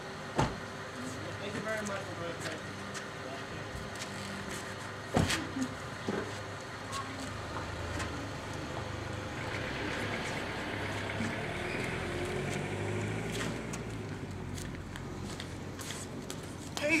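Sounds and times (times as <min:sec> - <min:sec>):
car engine pulling away: 0:07.2 - 0:16.6.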